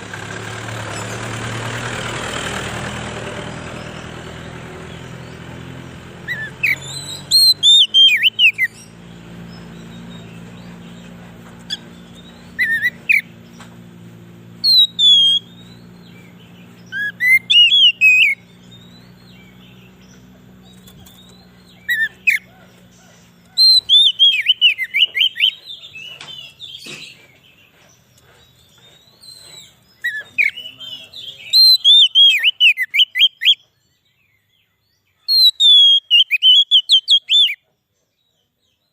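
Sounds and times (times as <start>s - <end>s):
bird singing whistled notes: 3.8s - 22.8s, 23.4s - 38.9s.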